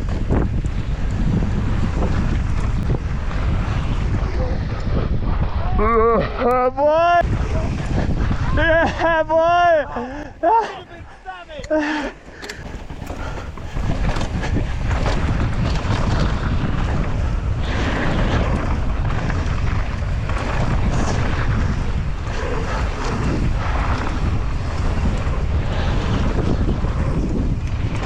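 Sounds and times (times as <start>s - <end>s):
bike tyres rattling over trail: 0.0s - 5.7s, 7.2s - 11.0s, 11.7s - 28.0s
wind rushing over microphone: 0.0s - 28.0s.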